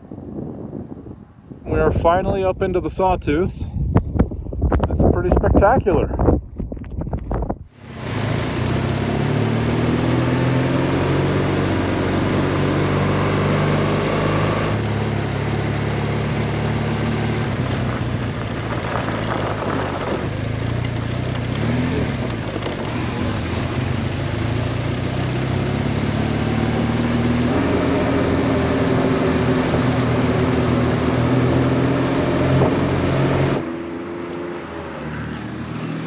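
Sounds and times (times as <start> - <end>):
heavy wind rush: 0.0 - 8.4, 17.5 - 20.5
motorcycle engine running: 7.8 - 36.0.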